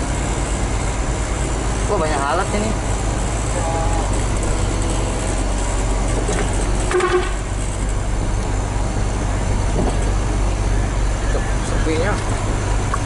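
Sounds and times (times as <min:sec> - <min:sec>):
truck diesel engine humming: 0:00.0 - 0:13.0
short tone: 0:06.9 - 0:07.5.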